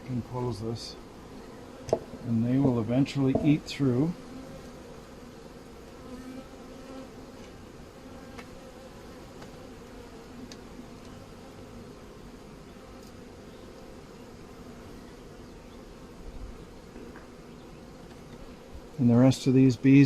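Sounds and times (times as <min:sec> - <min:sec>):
bees buzzing: 0:00.0 - 0:20.0
faint ticks: 0:10.4 - 0:11.2.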